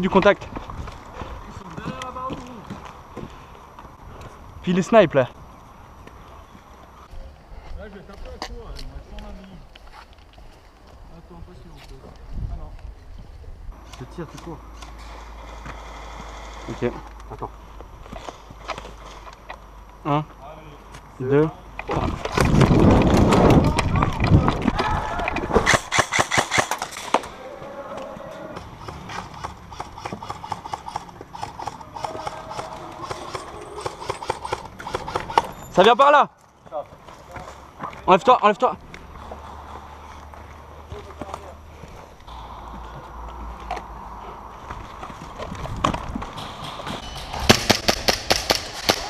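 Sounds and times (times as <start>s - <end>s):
airsoft gun shots: 25.6s - 27.0s, 46.4s - 49.0s
airsoft rifle firing: 25.6s - 27.2s, 29.4s - 35.5s, 46.4s - 49.0s.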